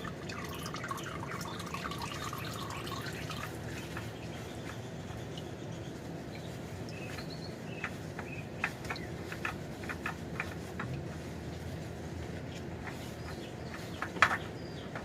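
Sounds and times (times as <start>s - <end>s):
oil dripping into a pan: 0.0s - 4.1s
low background hum: 0.0s - 15.0s.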